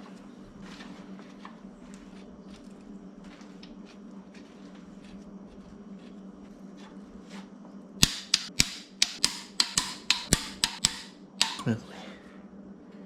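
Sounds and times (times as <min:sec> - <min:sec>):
sharp ringing clicks: 0:08.0 - 0:11.7.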